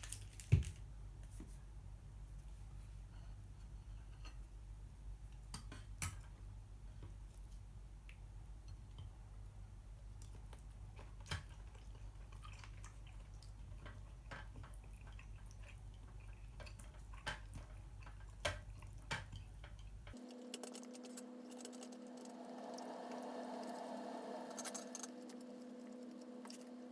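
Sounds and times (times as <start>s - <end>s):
low steady hum: 0.0s - 26.9s
steady tone: 20.2s - 26.9s.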